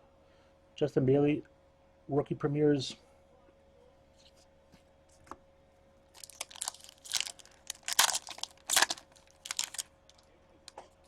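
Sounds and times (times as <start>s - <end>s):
foil wrapper crinkling and tearing: 6.1s - 10.2s.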